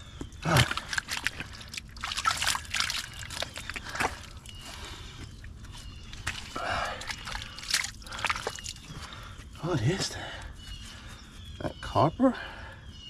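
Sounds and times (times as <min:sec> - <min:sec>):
muddy water sloshing and splashing: 0:00.0 - 0:11.4
water trickling: 0:00.4 - 0:09.3.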